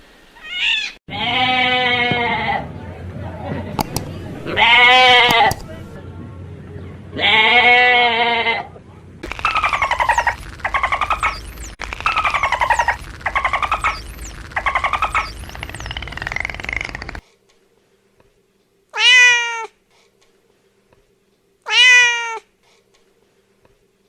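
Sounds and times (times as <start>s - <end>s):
animal bleat: 0.5s - 2.6s, 4.5s - 5.5s, 7.2s - 8.7s
rasping pulsed animal calls: 9.2s - 17.2s
faint high chirps: 9.3s - 17.2s.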